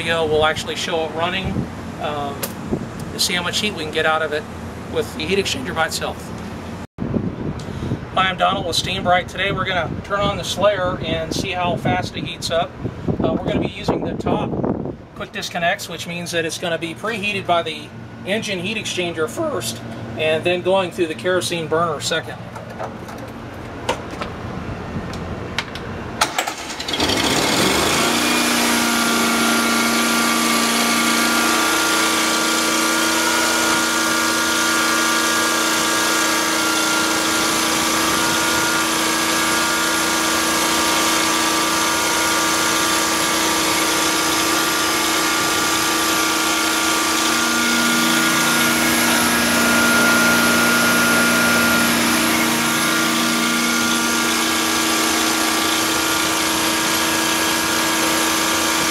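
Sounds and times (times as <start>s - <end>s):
carpet cleaning machine engine: 26.2s - 58.9s
high steady whine: 27.8s - 58.9s.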